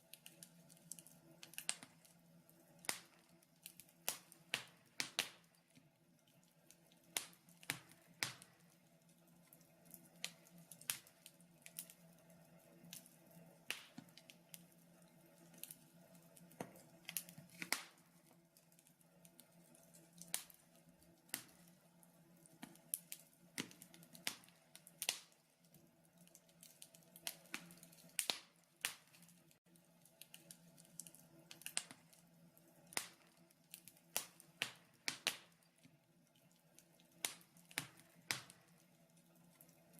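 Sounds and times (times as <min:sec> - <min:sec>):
faint steady hum: 0:00.0 - 0:39.9
wood fire crackling: 0:00.0 - 0:39.9.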